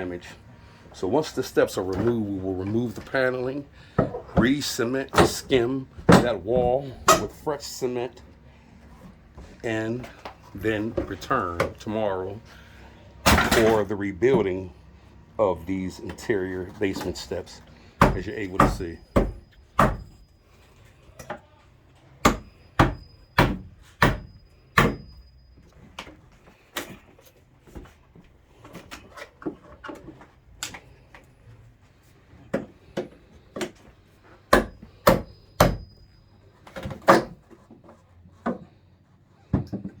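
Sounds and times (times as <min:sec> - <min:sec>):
wood being struck: 0:18.0 - 0:20.1, 0:22.2 - 0:25.1.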